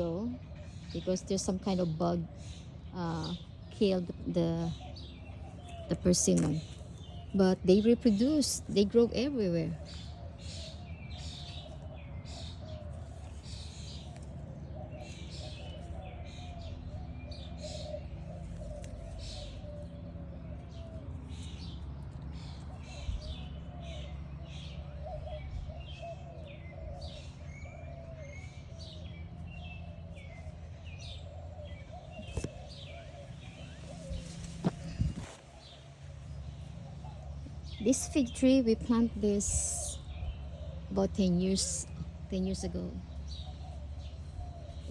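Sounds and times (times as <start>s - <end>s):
birds chirping and calling: 0.0s - 44.9s
steady low rumble: 0.0s - 44.9s.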